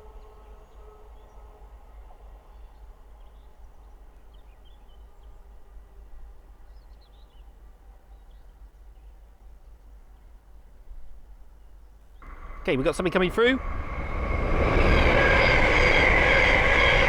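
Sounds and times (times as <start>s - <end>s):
electric train hum: 12.2s - 17.0s
wind rumble on microphone: 12.2s - 17.0s.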